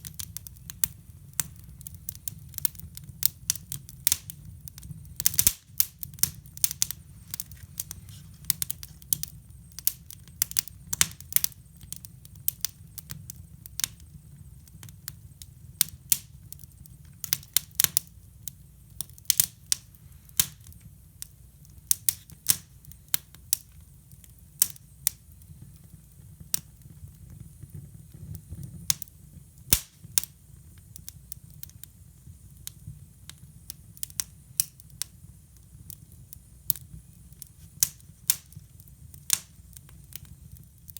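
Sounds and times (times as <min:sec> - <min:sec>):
low steady stove rumble: 0:00.0 - 0:40.9
wood fire crackling and popping: 0:00.0 - 0:40.9.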